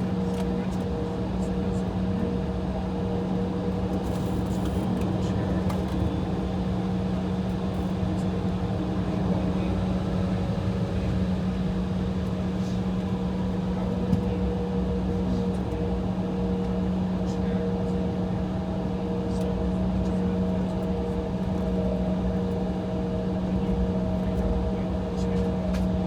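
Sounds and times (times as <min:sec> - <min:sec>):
airplane cabin drone: 0:00.0 - 0:26.0.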